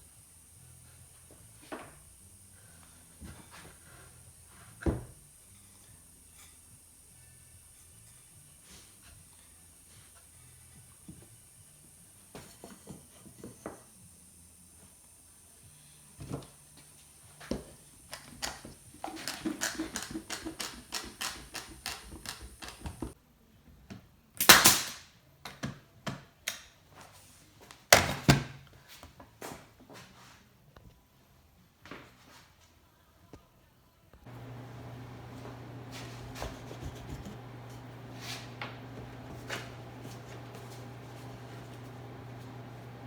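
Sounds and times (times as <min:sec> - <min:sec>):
hand tools tapping on wood: 0:18.1 - 0:23.2, 0:34.3 - 0:43.0.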